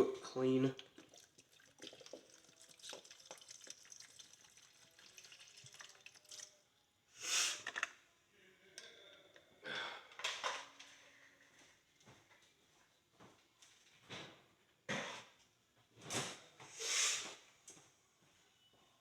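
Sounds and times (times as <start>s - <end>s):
liquid trickling and dripping: 0.4s - 6.6s
liquid splashing into plastic tray: 0.8s - 6.5s.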